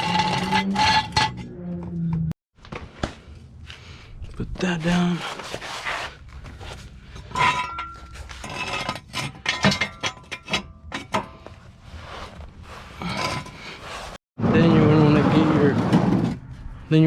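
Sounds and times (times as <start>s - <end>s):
metal tools clinking and clanking: 7.1s - 11.5s.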